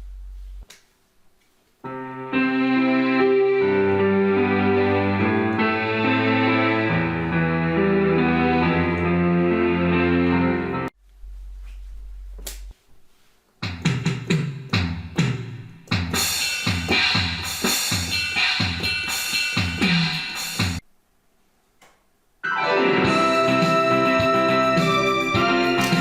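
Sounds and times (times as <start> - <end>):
held keyboard chord: 1.8 - 10.9, 22.4 - 26.0
drum rhythm with keyboard notes: 13.6 - 20.8, 22.9 - 26.0.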